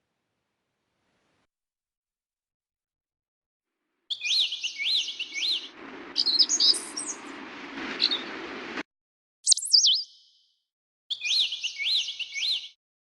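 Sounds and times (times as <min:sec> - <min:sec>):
birds chirping: 0:04.1 - 0:08.8, 0:09.5 - 0:10.4.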